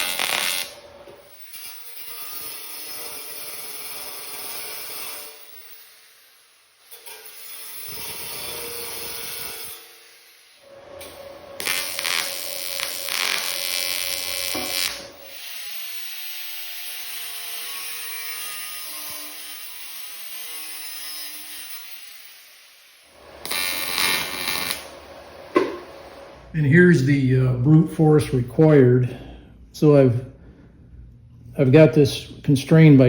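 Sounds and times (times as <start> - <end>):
angle grinder cutting sheet metal: 0.0 - 26.3.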